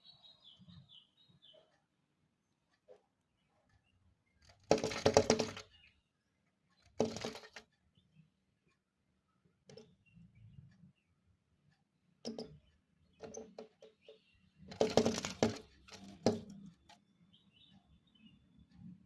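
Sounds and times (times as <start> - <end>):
bird pecking at window glass: 4.4 - 5.8, 6.8 - 7.6, 12.3 - 17.0.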